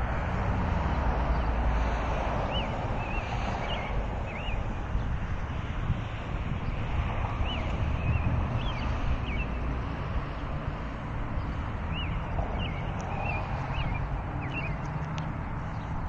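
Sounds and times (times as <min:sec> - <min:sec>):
wind on microphone: 0:00.0 - 0:16.0
bird chirping: 0:02.5 - 0:04.6, 0:07.4 - 0:09.6, 0:11.9 - 0:15.0.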